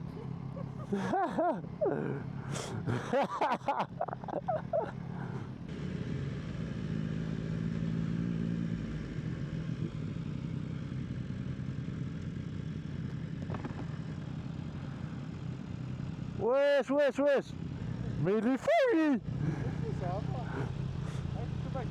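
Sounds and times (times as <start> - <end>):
motorcycle engine at low revs: 0.0 - 21.9.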